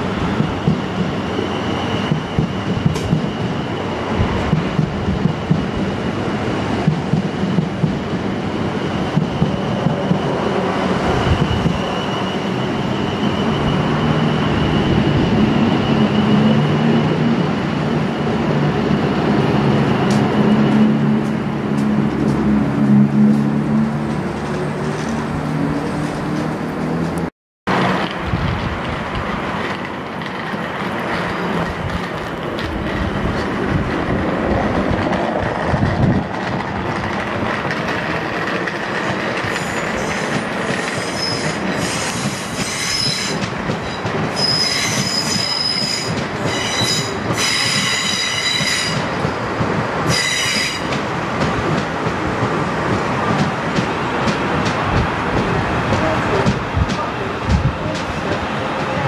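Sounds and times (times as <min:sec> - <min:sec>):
train wheels squealing: 0:00.0 - 0:22.4, 0:36.4 - 0:51.1
electric train rumbling past: 0:00.0 - 0:59.0.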